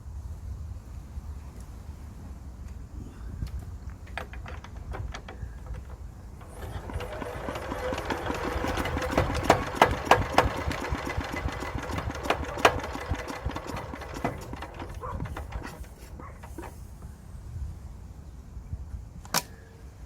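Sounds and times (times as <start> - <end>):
diesel engine knocking unevenly: 4.1 - 16.8.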